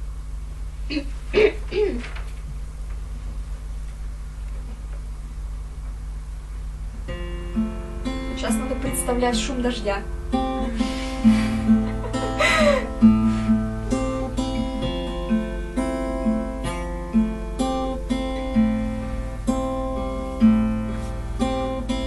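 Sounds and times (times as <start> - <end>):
acoustic guitar picking: 6.8 - 22.0.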